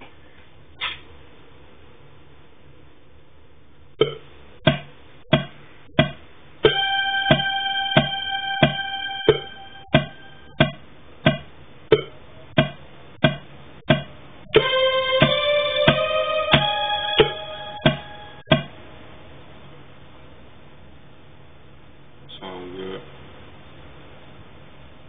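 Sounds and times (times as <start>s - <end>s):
synthesizer chord: 6.6s - 10.6s, 14.6s - 18.5s.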